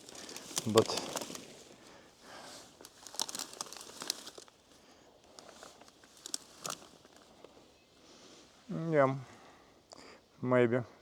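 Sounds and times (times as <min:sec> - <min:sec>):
dry undergrowth rustling and crackling: 0:00.0 - 0:07.5.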